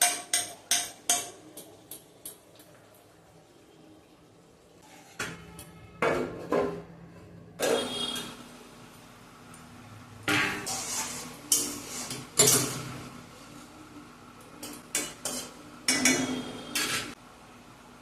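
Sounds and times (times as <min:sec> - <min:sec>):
metal utensil scraping a pot: 0:04.8 - 0:05.6, 0:10.5 - 0:13.0.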